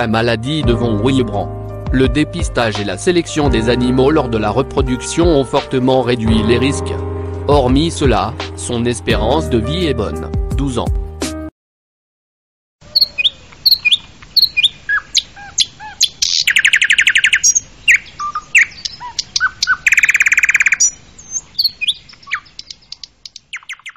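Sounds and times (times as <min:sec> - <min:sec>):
rapid bird trill: 0:12.8 - 0:23.9
songbirds chirping and whistling: 0:12.8 - 0:23.9.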